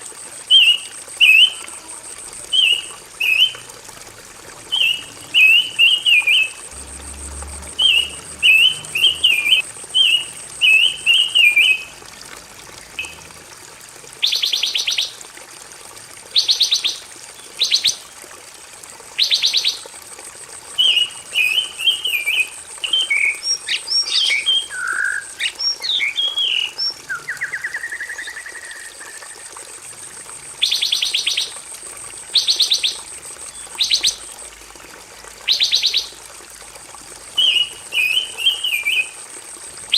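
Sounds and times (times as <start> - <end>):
songbird singing: 4.7 - 12.0, 13.0 - 13.2, 20.8 - 29.5, 35.5 - 36.2, 37.4 - 39.2.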